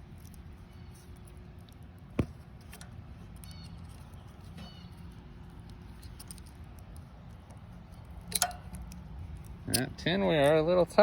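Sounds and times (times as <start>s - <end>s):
metal blade squeaks and ticks: 3.3s - 5.2s.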